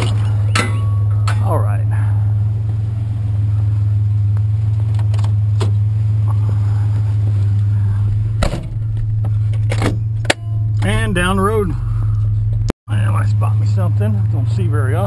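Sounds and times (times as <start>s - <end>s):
truck engine humming: 0.0s - 15.0s.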